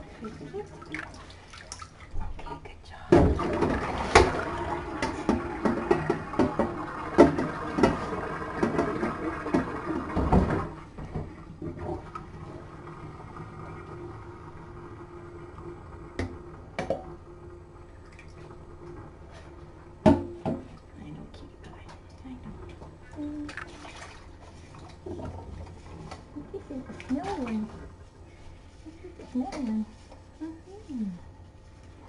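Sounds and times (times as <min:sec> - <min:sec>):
faint background hum: 0:00.0 - 0:32.0
small splashes and knocks: 0:00.2 - 0:12.3, 0:18.0 - 0:18.5, 0:19.3 - 0:28.0
water running from tap: 0:03.4 - 0:21.2, 0:22.2 - 0:28.1.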